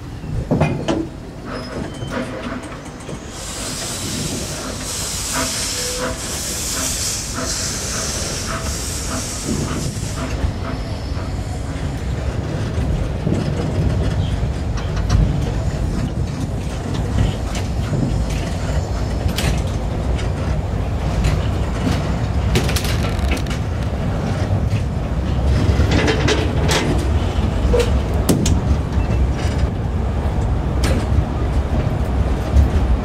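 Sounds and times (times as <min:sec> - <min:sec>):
train rumbling along track: 0:00.0 - 0:33.0
wheel and carriage rattles: 0:11.7 - 0:29.8.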